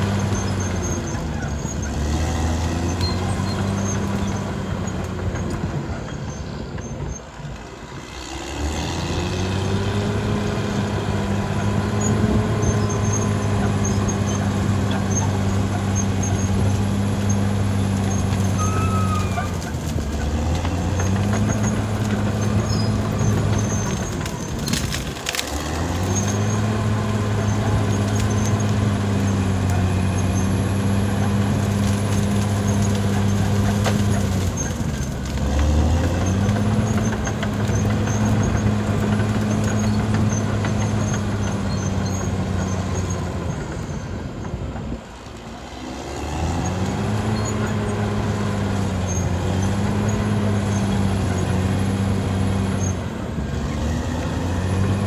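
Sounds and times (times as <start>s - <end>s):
bulldozer diesel engine running: 0.0s - 55.0s
scattered clicks and clanks: 11.5s - 55.0s.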